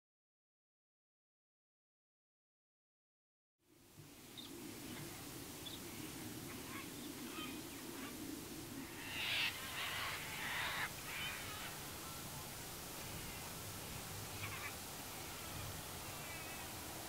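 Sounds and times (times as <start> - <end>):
faint low hum: 3.7 - 17.0
birds calling: 4.3 - 17.0
loud harsh bird calls: 8.8 - 12.4, 14.2 - 16.9.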